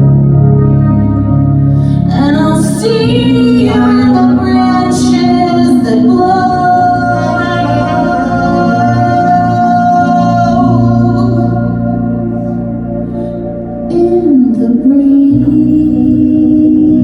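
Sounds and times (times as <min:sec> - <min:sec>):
instrumental accompaniment: 0:00.0 - 0:17.0
woman singing long notes: 0:01.9 - 0:12.2.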